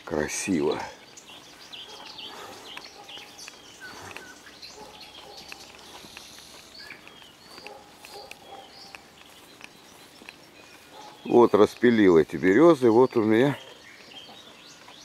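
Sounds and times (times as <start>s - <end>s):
nightingale singing: 0.0s - 15.0s.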